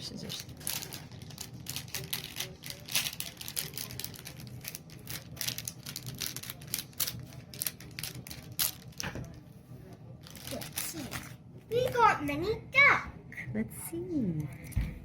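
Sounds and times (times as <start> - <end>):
scissors cutting plastic bag: 0.1 - 9.1.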